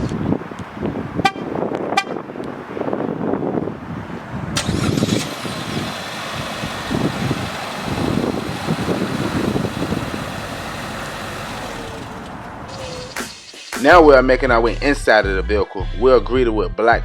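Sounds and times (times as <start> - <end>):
car engine starting and running: 4.3 - 13.4.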